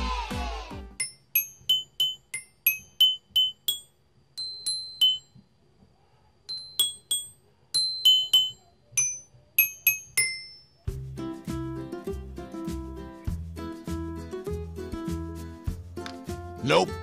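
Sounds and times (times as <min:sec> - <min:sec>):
toy xylophone notes: 0:01.0 - 0:05.4, 0:06.5 - 0:10.9.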